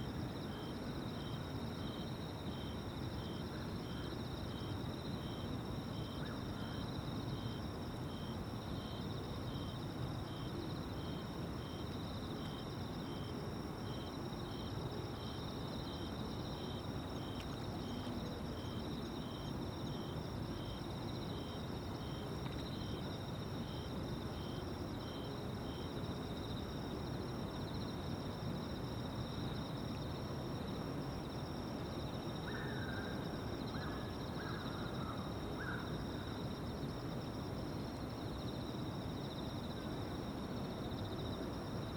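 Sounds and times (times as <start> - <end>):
insect chirping: 0.0 - 41.9
insects trilling: 31.3 - 37.3.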